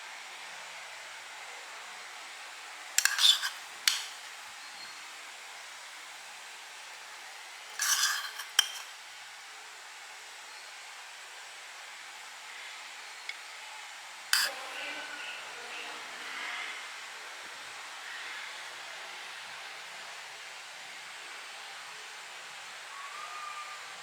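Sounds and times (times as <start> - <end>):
utensil scraping a pan: 3.0 - 4.4, 7.7 - 9.0, 14.4 - 14.6.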